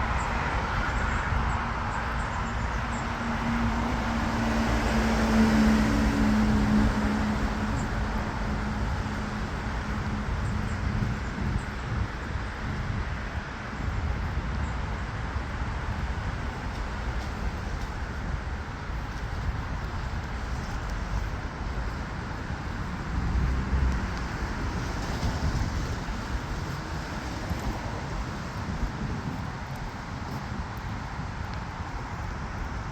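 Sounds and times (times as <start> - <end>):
cars passing on wet road: 0.0 - 32.9
steady rain: 12.0 - 32.9.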